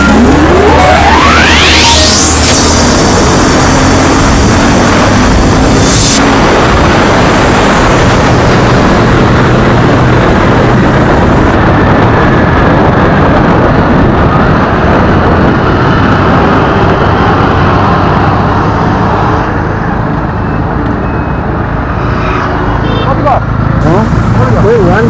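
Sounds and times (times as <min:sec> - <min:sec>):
motorcycle engine running: 0:00.0 - 0:18.2
wind rushing over microphone: 0:00.0 - 0:25.0.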